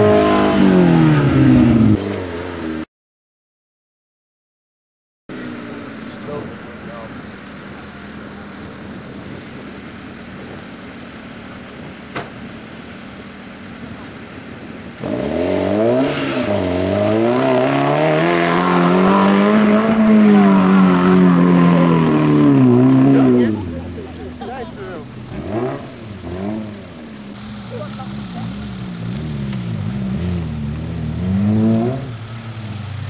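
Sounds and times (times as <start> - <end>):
engine revving: 0.0 - 2.8, 15.0 - 33.0
low steady rumble: 19.0 - 33.0.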